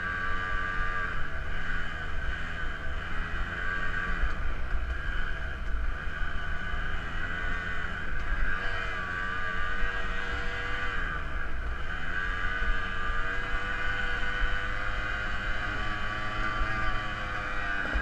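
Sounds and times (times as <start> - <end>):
dirt bike engine running: 0.0 - 18.0.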